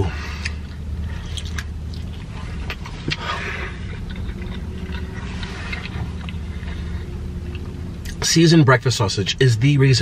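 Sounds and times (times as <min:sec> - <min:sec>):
low steady hum: 0:00.0 - 0:10.0
wet chewing: 0:00.3 - 0:08.2.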